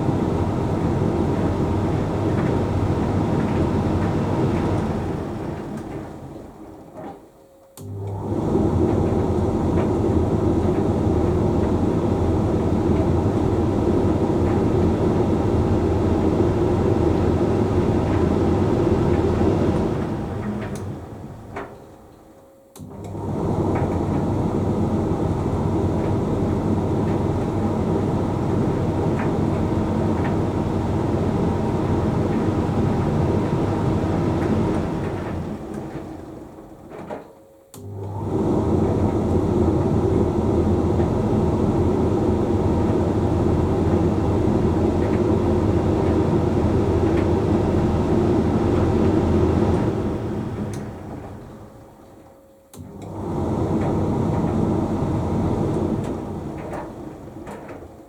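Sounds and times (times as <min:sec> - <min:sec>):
tumble dryer drum rumbling: 0:00.0 - 0:58.0.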